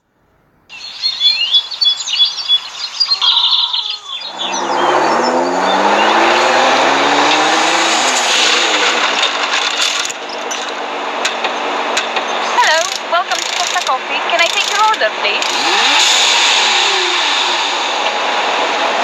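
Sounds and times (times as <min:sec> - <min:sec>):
birds chirping: 0:00.7 - 0:07.3, 0:12.5 - 0:19.0
car engine accelerating: 0:04.3 - 0:11.9, 0:14.3 - 0:19.0.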